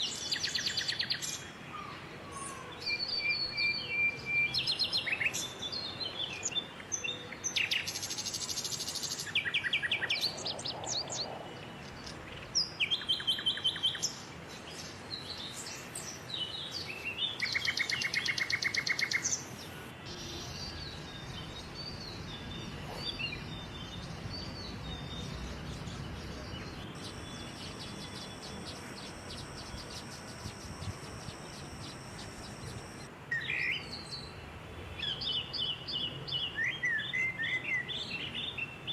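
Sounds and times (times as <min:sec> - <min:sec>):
small birds chirping and trilling: 0:00.2 - 0:33.1
low background hum: 0:19.7 - 0:33.1
high-pitched buzz: 0:26.6 - 0:33.1.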